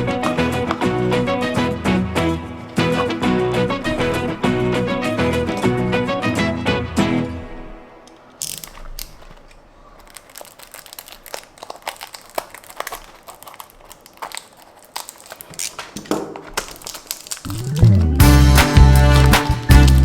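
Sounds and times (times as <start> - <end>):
packaging crinkling and rustling: 8.1 - 20.0.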